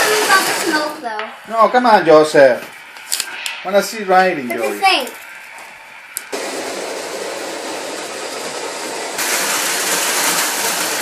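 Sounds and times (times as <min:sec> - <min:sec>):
toy train mechanical running noise: 0:00.0 - 0:01.1, 0:06.4 - 0:11.0.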